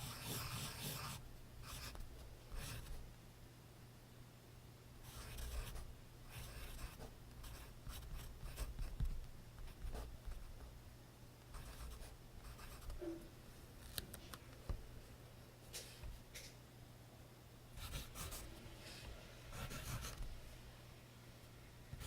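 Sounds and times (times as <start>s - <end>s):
pencil scratching on paper: 0.0s - 3.0s, 5.1s - 10.2s, 11.6s - 13.1s, 17.8s - 18.5s, 19.5s - 20.2s.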